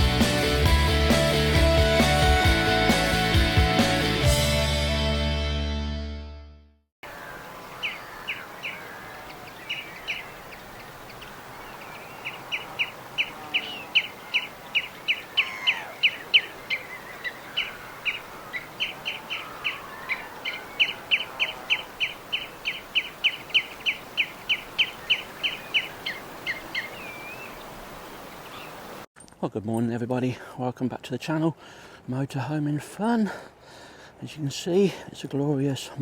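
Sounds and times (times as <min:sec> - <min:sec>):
music: 0:00.0 - 0:06.8
small birds chirping: 0:07.0 - 0:29.0.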